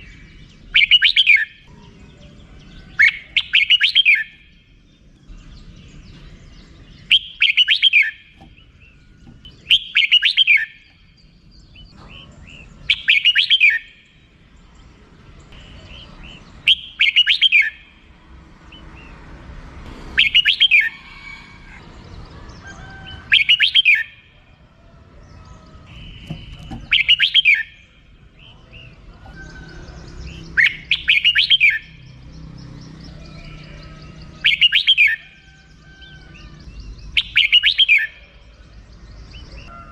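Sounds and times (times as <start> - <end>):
bird sharp chirp bursts: 0.0 - 2.0, 2.8 - 14.4, 15.5 - 18.0, 20.0 - 21.9, 22.6 - 24.4, 25.8 - 29.0, 30.2 - 33.7, 34.3 - 35.4, 36.0 - 38.4.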